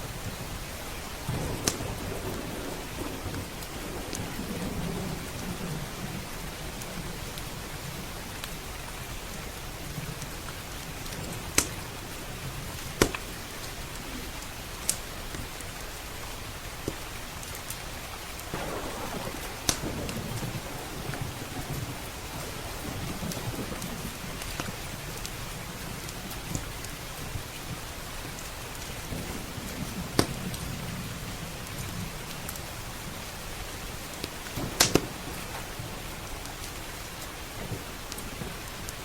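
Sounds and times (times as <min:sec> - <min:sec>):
steady rain: 0:00.0 - 0:39.0
low rolling thunder: 0:01.2 - 0:08.3, 0:18.5 - 0:27.8, 0:29.0 - 0:33.7, 0:34.4 - 0:38.8
wood fire popping: 0:01.5 - 0:02.0, 0:10.0 - 0:15.5, 0:18.5 - 0:27.0, 0:29.9 - 0:30.6, 0:34.1 - 0:39.0.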